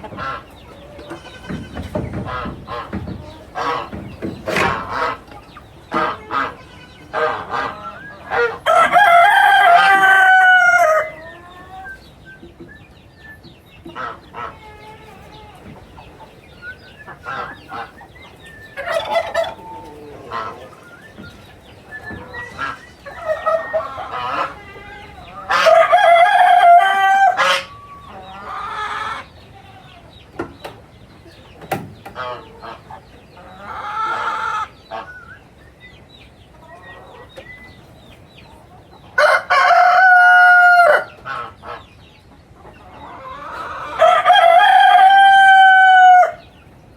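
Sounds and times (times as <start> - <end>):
hens clucking: 0.0 - 46.9
rooster crowing: 8.3 - 11.4, 23.2 - 28.0, 39.2 - 41.2, 43.8 - 46.5.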